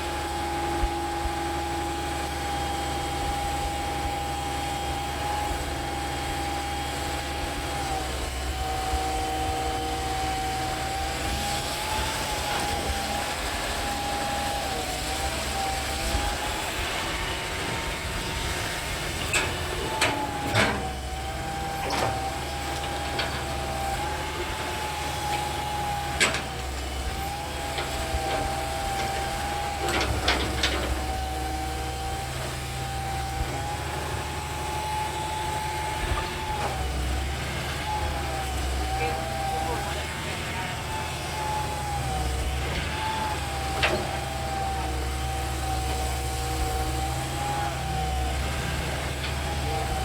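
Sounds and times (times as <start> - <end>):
excavator whine and engine rumble: 0.0 - 50.0.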